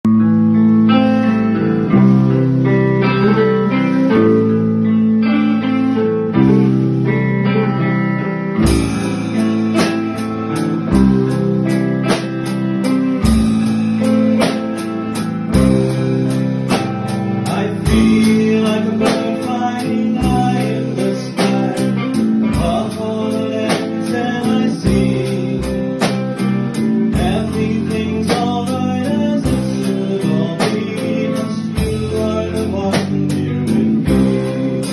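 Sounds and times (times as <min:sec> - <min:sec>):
guitar and bass chords: 0:00.0 - 0:34.9
drums steady beat: 0:08.6 - 0:34.9.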